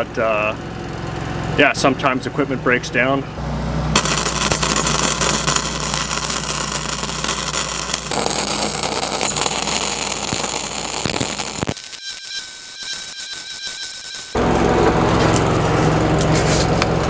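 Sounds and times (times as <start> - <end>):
arc welding crackle: 4.0 - 16.8.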